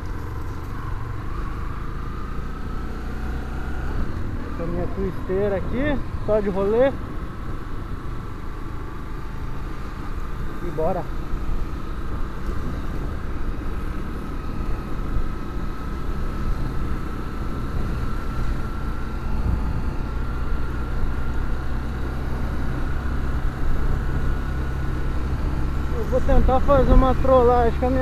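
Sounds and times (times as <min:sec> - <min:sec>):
motorcycle engine running: 0:00.0 - 0:28.0
wind rumbling on microphone: 0:11.2 - 0:27.8.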